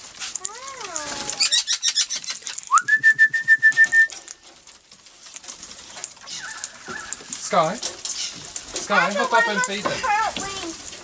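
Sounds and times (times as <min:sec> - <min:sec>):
rising whistled note: 0:02.7 - 0:04.2.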